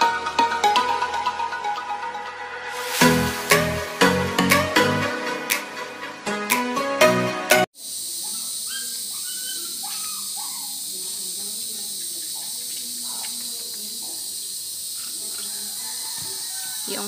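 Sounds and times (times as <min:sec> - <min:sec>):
electronic intro tune: 0:01.0 - 0:06.0
chorus of insects: 0:07.8 - 0:17.0
faint distant voices: 0:08.0 - 0:17.0.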